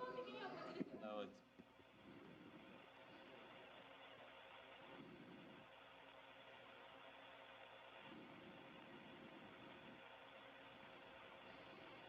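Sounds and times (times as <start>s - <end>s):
faint low murmur: 0.0s - 6.2s
faint static hiss: 0.0s - 12.0s.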